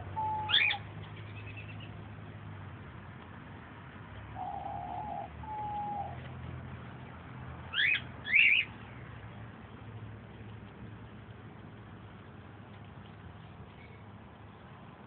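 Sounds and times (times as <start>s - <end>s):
young bird chirping: 0.2s - 1.9s, 4.4s - 6.2s, 7.7s - 8.7s.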